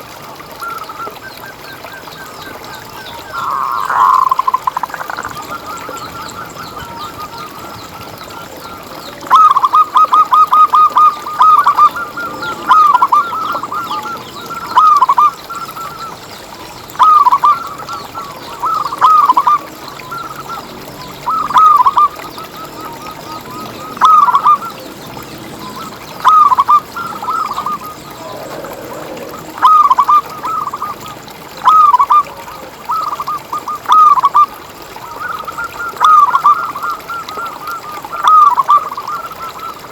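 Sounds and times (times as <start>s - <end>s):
dove cooing: 9.2s - 15.4s, 21.2s - 24.9s, 25.6s - 33.2s.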